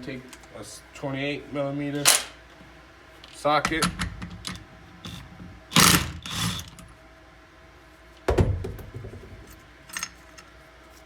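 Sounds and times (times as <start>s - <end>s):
impact wrench bursts: 5.1s - 6.7s.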